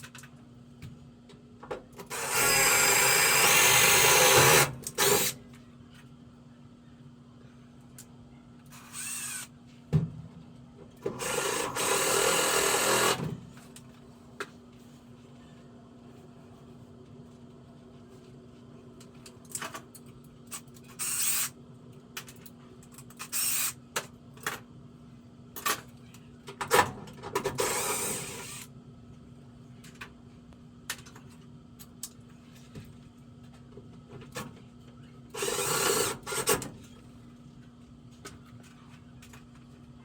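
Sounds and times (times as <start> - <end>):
power drill driving screws: 2.1 - 5.4, 8.9 - 9.5, 11.1 - 13.2, 35.4 - 36.5.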